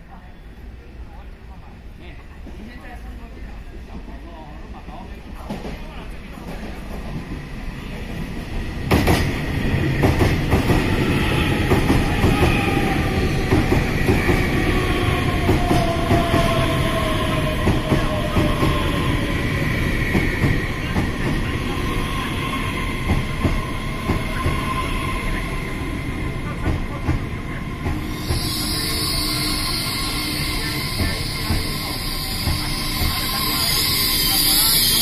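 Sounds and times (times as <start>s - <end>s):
train whine falling in pitch: 27.9s - 35.0s.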